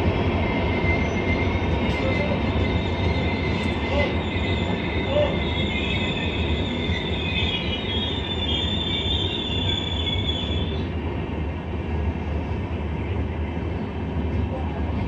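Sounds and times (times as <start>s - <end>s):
train wheels rumbling on rails: 0.0s - 15.0s
wheels squealing: 0.6s - 10.9s.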